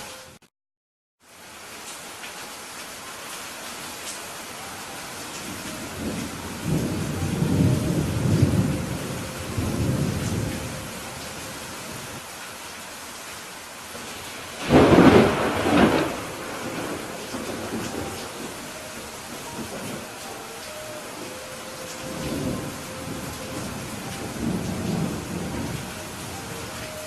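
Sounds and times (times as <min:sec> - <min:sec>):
steady rain: 0:00.0 - 0:00.4, 0:01.2 - 0:27.0
rolling thunder rumble: 0:05.5 - 0:12.2, 0:14.5 - 0:20.2, 0:21.2 - 0:27.0
thunder clap: 0:14.6 - 0:18.7.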